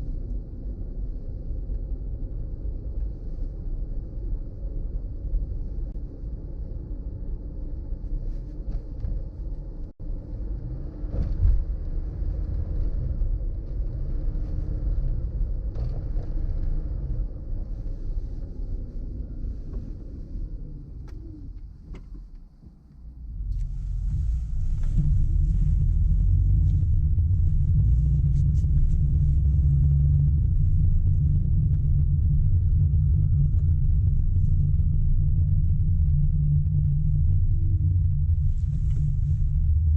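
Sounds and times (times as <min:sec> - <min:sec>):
car driving on road: 0:00.0 - 0:39.9.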